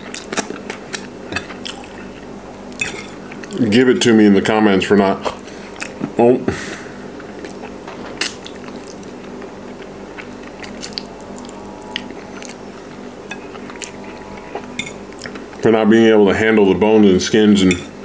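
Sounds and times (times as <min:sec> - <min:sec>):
person chewing chicken: 0:00.0 - 0:03.6, 0:05.6 - 0:06.1, 0:07.1 - 0:15.6
small bone crunches: 0:07.4 - 0:12.6.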